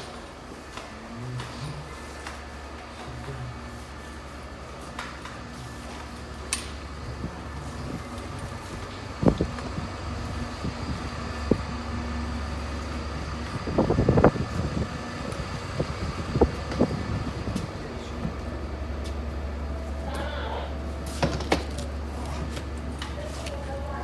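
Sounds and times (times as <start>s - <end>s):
steady low rumble: 5.6s - 21.0s.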